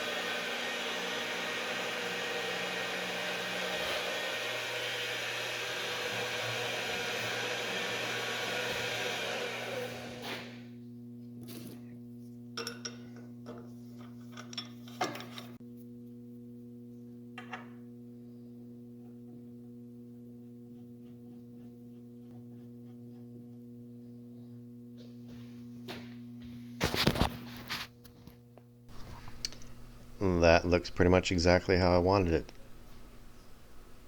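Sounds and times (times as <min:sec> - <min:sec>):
electric drill humming: 0:00.0 - 0:10.6.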